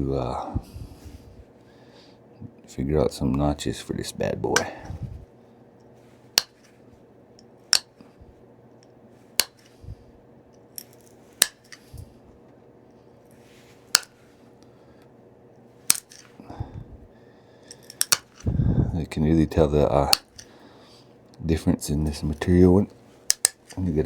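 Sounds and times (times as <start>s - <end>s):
stone flakes snapping off: 6.4s - 6.7s, 7.7s - 8.0s, 9.4s - 9.8s, 10.8s - 12.0s, 13.9s - 14.2s, 15.9s - 16.3s, 17.7s - 18.5s, 20.1s - 20.6s, 23.3s - 23.9s.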